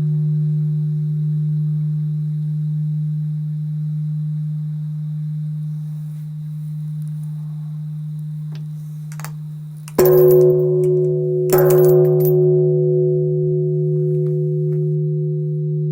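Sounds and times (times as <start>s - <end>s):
loud bell clang: 9.9s - 12.6s
temple bell humming: 9.9s - 15.9s.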